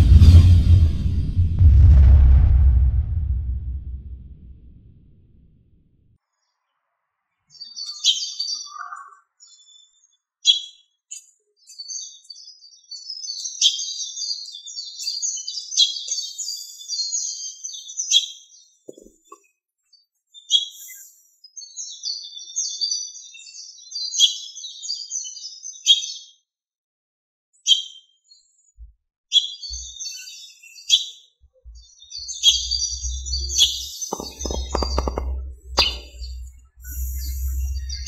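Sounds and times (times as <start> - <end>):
songbird chirping: 31.6 - 38.0.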